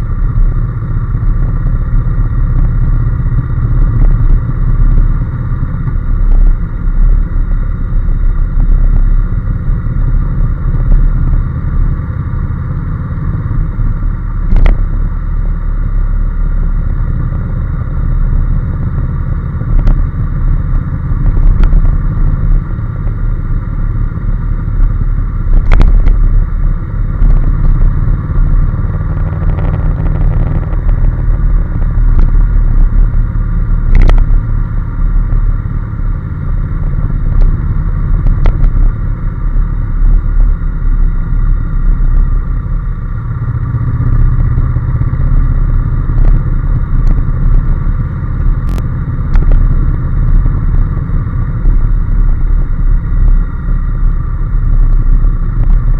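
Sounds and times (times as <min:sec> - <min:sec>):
motorcycle engine running: 0:00.0 - 0:55.9
sharp clicks: 0:48.4 - 0:49.6.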